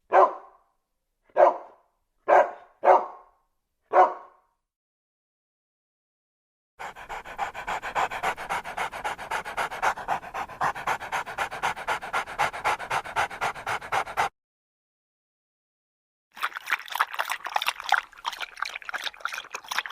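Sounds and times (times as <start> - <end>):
dog panting: 6.8 - 14.3.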